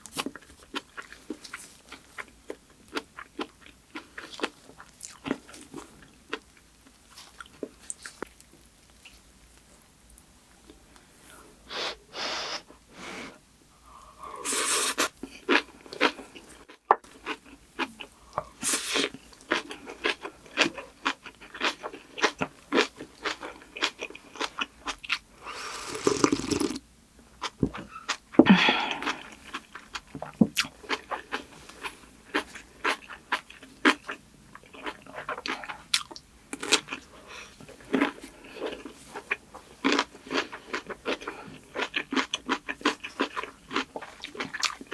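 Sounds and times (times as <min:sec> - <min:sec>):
crunching bites: 0:25.5 - 0:26.8.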